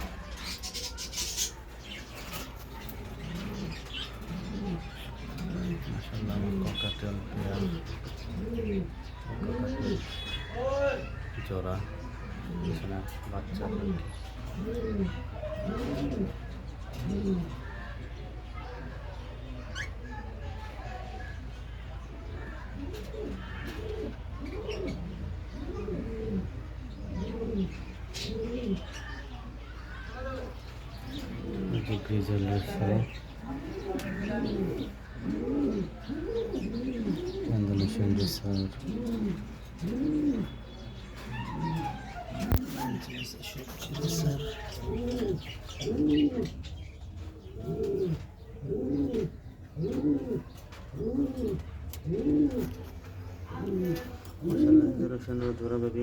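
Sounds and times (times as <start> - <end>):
cage birds chirping: 0.0 - 56.0
pigeons cooing: 0.0 - 56.0.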